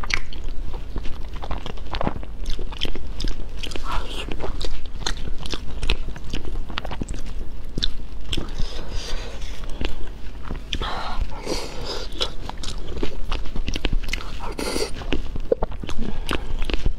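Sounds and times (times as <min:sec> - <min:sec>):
mouth clicks: 0:00.0 - 0:00.5
person chewing food: 0:00.0 - 0:16.9.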